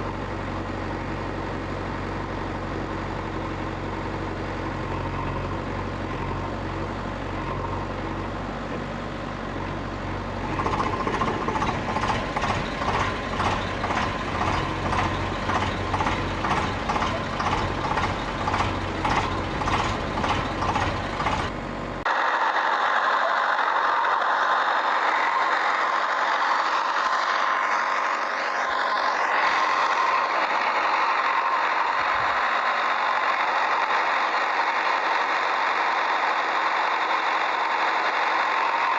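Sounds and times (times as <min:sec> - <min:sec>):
motor humming and whirring: 0:10.3 - 0:22.0.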